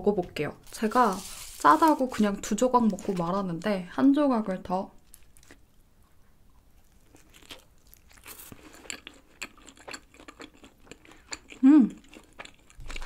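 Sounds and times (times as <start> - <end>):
pizza crunching while chewing: 6.8 - 13.0.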